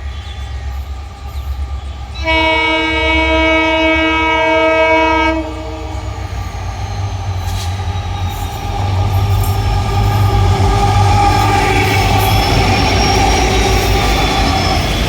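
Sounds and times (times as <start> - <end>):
locomotive engine hum: 0.0 - 15.0
rail and wheel noise: 0.0 - 15.0
train horn: 2.1 - 6.2
faint high squeal: 5.6 - 15.0.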